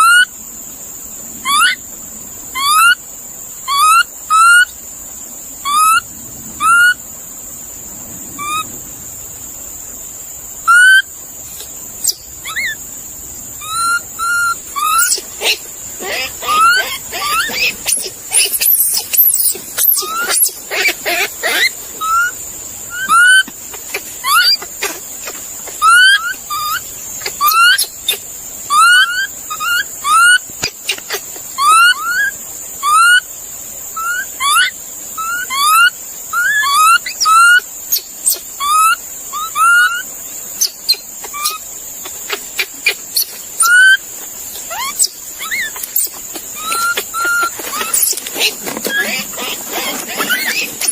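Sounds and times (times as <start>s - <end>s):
animal making whistled chirps: 10.6s - 11.1s, 12.0s - 12.8s, 13.6s - 22.3s, 22.9s - 23.5s, 24.2s - 25.0s, 25.8s - 33.2s, 34.0s - 44.0s, 44.6s - 50.9s.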